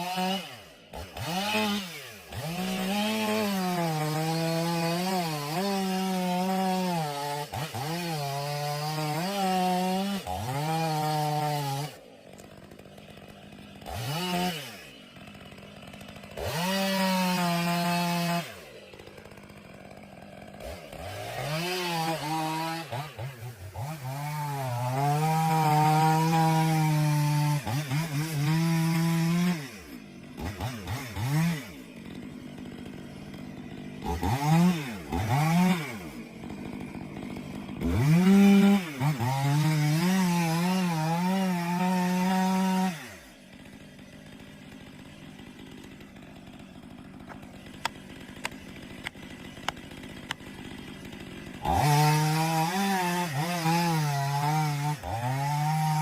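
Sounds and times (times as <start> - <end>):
chainsaw engine revving: 0.0 - 56.0.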